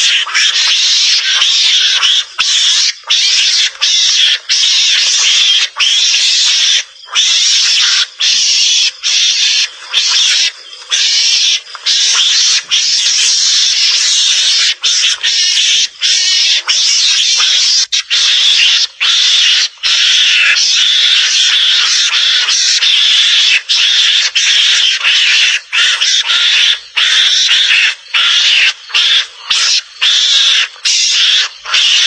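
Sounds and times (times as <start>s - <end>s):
mongoose harsh hissy calls: 0.0s - 32.0s.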